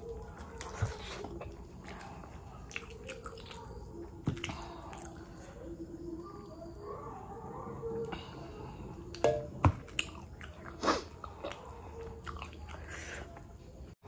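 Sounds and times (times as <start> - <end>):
close chewing of food: 0.0 - 14.0.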